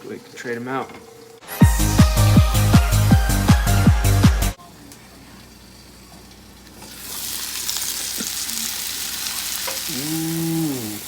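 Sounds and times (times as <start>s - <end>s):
meat sizzling in a frying pan: 6.7s - 11.0s
person humming: 9.7s - 11.0s.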